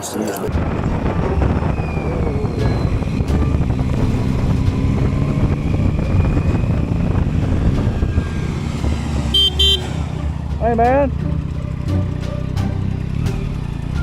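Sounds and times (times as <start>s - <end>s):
motorcycle engine drone: 0.5s - 14.0s.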